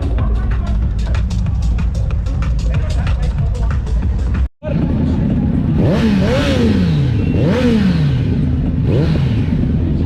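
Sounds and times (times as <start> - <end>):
motorcycle engine throttle blips: 4.9 - 9.9.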